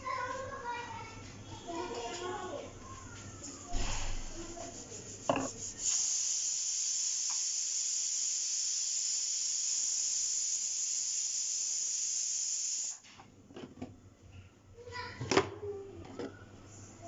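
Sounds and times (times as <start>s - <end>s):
high pressurised hiss: 3.7s - 13.0s.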